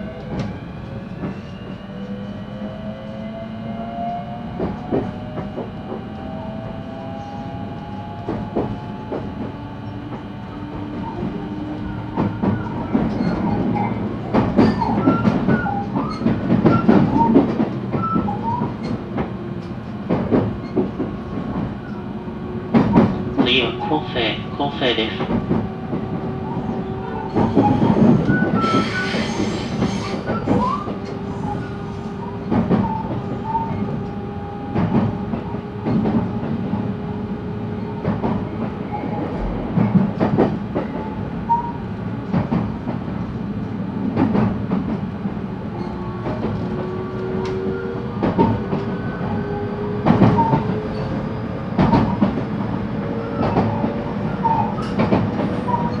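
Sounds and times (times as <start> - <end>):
train rumble: 0.0 - 56.0
train wheels clacking over rail joints: 53.4 - 56.0.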